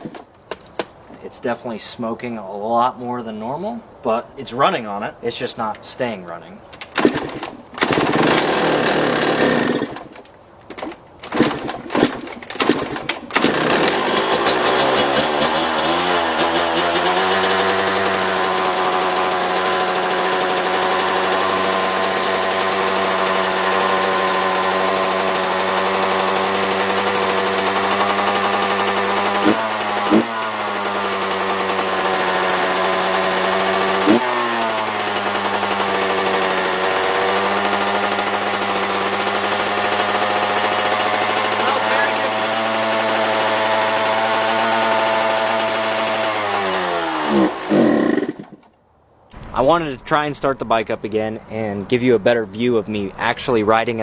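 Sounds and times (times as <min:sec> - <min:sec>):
dirt bike engine running: 0:07.0 - 0:10.0, 0:11.3 - 0:48.6.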